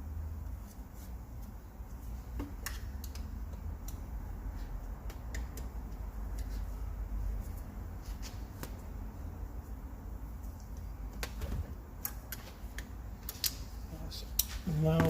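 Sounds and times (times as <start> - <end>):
steady low hum: 0.0 - 15.0
metallic clicks of tools and parts: 12.0 - 13.6.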